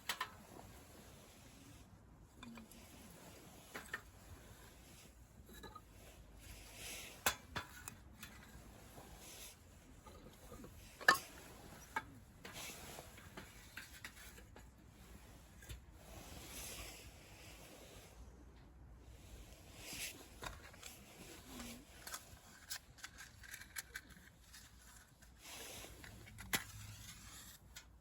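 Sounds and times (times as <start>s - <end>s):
soft rustling: 8.0s - 28.0s.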